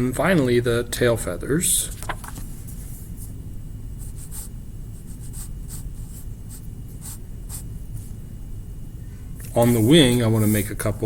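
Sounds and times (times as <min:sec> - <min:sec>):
low room hum: 0:00.0 - 0:11.0
pen scratching on paper: 0:04.0 - 0:08.1.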